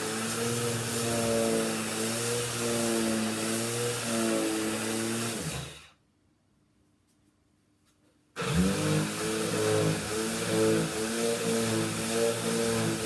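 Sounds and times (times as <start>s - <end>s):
electric power sander running: 0.0s - 5.8s, 8.4s - 13.0s.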